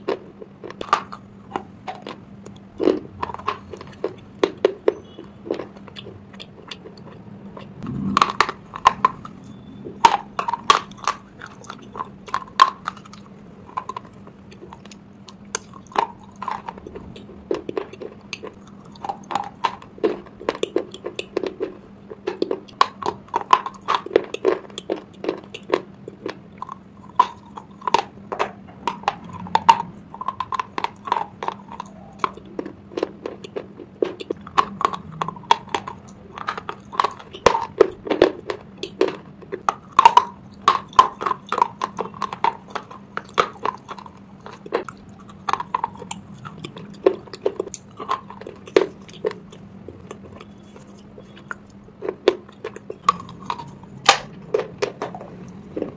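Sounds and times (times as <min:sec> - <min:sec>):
crunchy chewing: 0:00.0 - 0:55.9.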